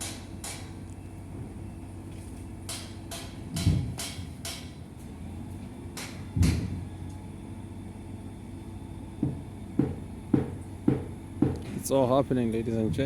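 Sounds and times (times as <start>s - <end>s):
low engine hum: 0.0s - 13.0s
loud clunk: 2.8s - 4.8s, 6.0s - 6.9s.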